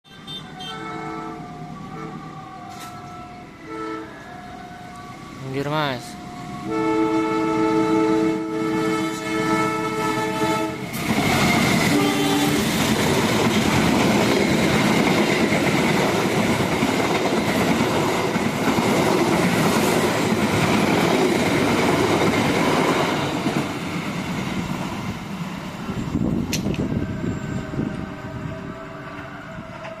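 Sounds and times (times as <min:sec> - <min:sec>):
train horn: 0:00.0 - 0:05.4, 0:06.1 - 0:13.2, 0:26.7 - 0:30.0
passenger train passing: 0:00.1 - 0:30.0.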